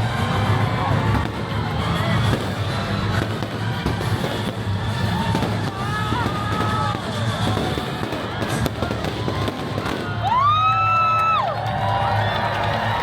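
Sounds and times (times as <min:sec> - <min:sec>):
loud show music: 0:00.0 - 0:10.8
fireworks bursting and crackling: 0:00.0 - 0:11.4
crowd voices: 0:00.0 - 0:13.0.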